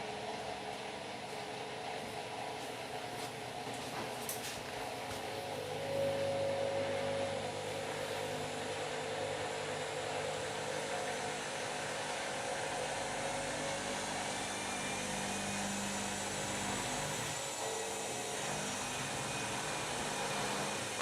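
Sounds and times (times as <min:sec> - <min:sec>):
washing machine motor humming: 0:01.2 - 0:21.0
low tone: 0:05.7 - 0:07.9.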